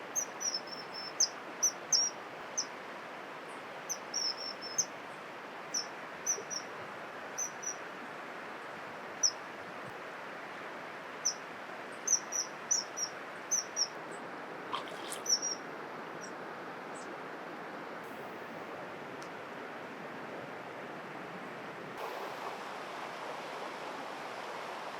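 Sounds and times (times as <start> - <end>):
steady background hiss: 0.0 - 24.9
small bird chirping: 3.9 - 4.9, 12.1 - 14.0, 14.7 - 15.6.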